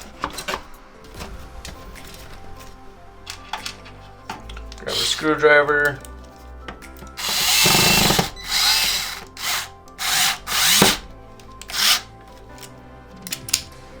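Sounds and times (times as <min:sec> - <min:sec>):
electric screwdriver whirring: 0:07.2 - 0:12.1.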